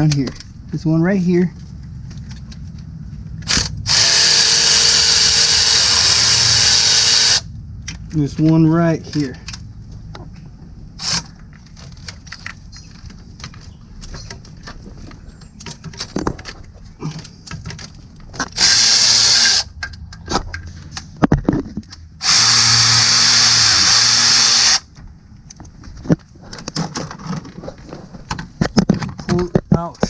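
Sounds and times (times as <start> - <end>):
tool handling clicks and knocks: 0.0 - 0.8, 7.8 - 18.6, 19.7 - 22.1, 24.9 - 30.0
power tool running: 3.5 - 7.5, 18.6 - 19.7, 22.2 - 24.9.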